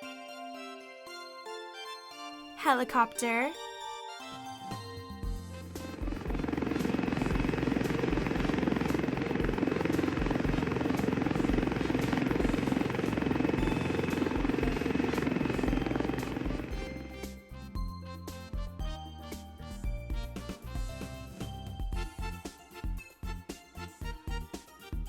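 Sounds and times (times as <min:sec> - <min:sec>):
helicopter rotor chopping: 0:05.3 - 0:17.4.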